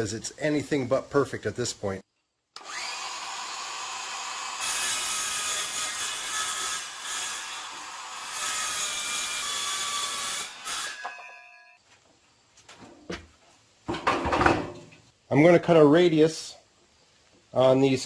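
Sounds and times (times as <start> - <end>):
circular saw cutting: 2.6 - 11.6.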